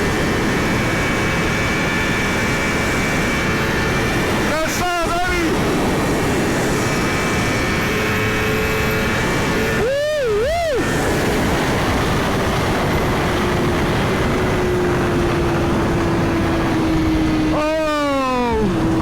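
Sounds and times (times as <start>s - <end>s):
wind rush on microphone: 0.0s - 19.0s
motorcycle engine cruising: 5.6s - 9.9s, 10.7s - 19.0s.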